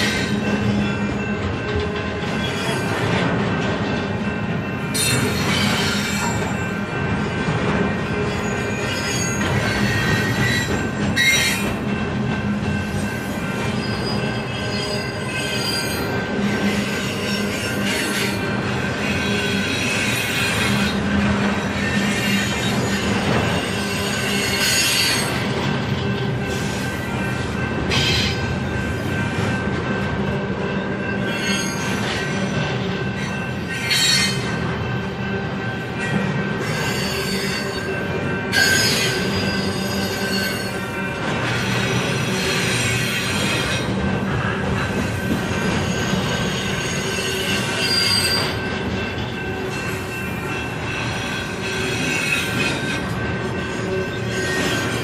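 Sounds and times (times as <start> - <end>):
train wheels rumbling on rails: 0.0 - 55.0
high-pitched wheel squeals: 8.3 - 11.7, 45.6 - 48.6.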